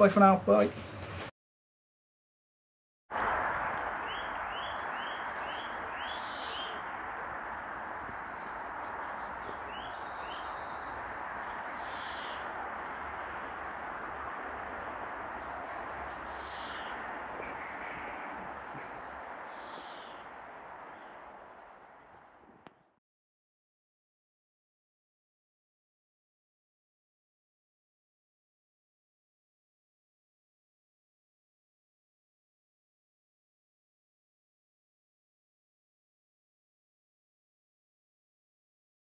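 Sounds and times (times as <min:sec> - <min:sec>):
outdoor background hiss: 0:00.0 - 0:01.3, 0:03.2 - 0:23.0
songbirds chirping: 0:03.7 - 0:23.0.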